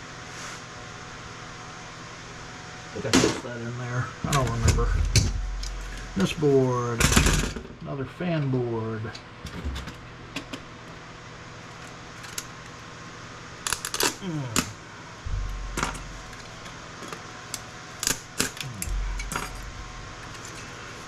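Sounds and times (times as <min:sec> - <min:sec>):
faint hum: 0:00.0 - 0:21.0
dull thuds: 0:15.3 - 0:16.8, 0:18.8 - 0:20.5
electronic parts clattering: 0:15.3 - 0:17.3, 0:18.0 - 0:21.0.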